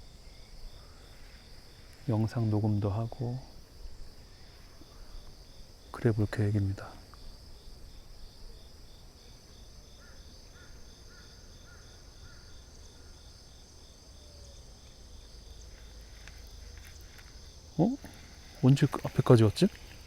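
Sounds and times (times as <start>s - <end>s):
insects chirping: 0.0s - 20.0s
pulsed insect chirp: 0.0s - 20.0s.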